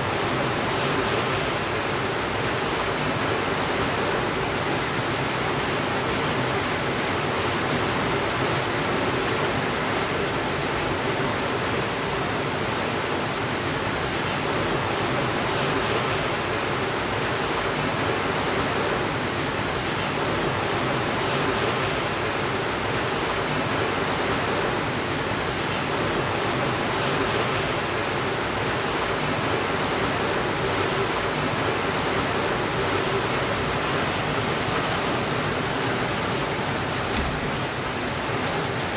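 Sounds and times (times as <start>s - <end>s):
steady rainfall hiss: 0.0s - 38.9s.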